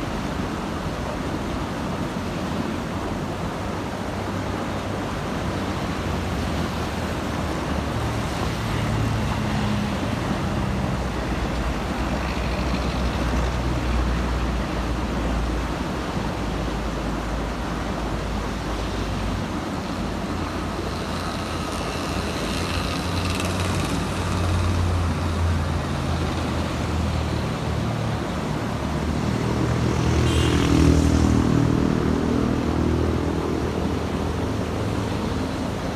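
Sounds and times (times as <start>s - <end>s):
heavy vehicles passing: 3.3s - 35.9s
low diesel rumble: 6.6s - 29.5s.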